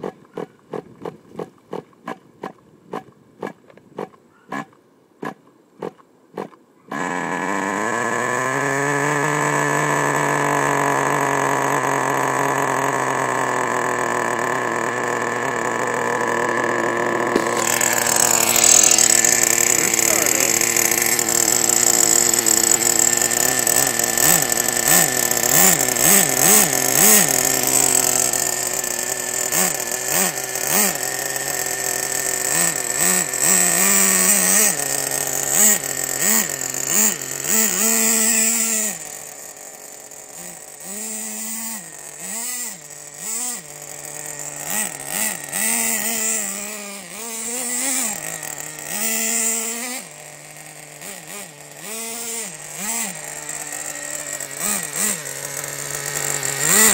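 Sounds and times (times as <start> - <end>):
small nitro engine revving: 0.0 - 56.9.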